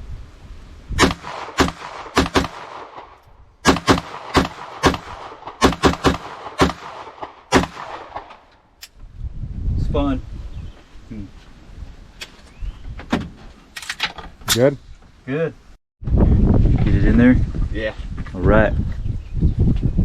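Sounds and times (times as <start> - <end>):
carbine gunshots: 1.0 - 8.6.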